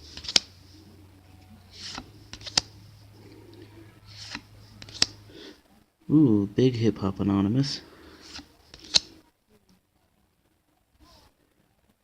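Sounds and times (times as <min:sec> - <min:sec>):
card sliding swish: 0:00.0 - 0:00.6, 0:01.7 - 0:02.8, 0:04.0 - 0:05.3, 0:08.2 - 0:09.2
low steady hum: 0:00.0 - 0:09.3
card snapping: 0:00.1 - 0:00.5, 0:01.8 - 0:02.8, 0:04.1 - 0:05.2, 0:08.2 - 0:09.2.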